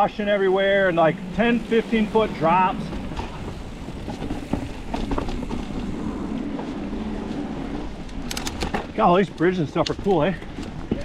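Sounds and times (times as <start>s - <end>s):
bike tyres rolling on dirt: 0.0s - 11.0s
sharp clicks: 8.1s - 9.0s.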